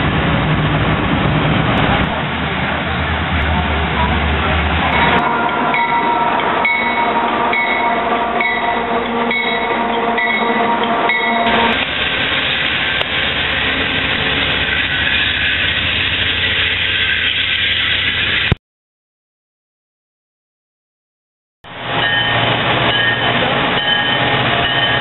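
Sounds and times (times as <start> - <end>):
diesel locomotive rumble: 0.0 - 18.6, 21.6 - 25.0
rail noise: 0.0 - 18.6, 21.6 - 25.0
bell ringing: 5.0 - 11.8, 22.0 - 25.0
train horn chord: 5.0 - 13.9.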